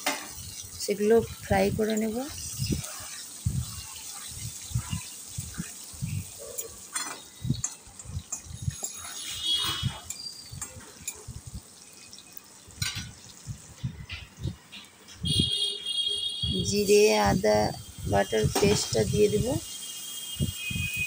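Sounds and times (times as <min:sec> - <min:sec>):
potatoes sizzling in oil: 0:00.0 - 0:15.6, 0:16.4 - 0:21.0
metal spatula scraping pan: 0:02.0 - 0:05.8, 0:06.4 - 0:11.2.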